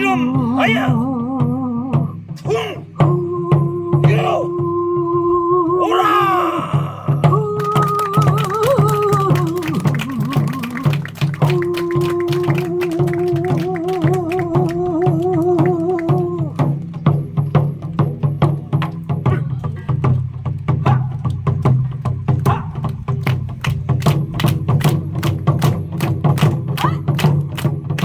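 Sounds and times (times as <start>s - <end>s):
person singing with vibrato: 0.0s - 16.6s.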